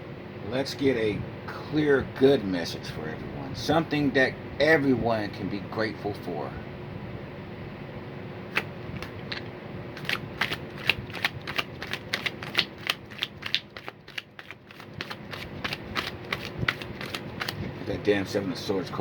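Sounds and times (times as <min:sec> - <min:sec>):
cards being shuffled by hand: 0:08.5 - 0:18.0.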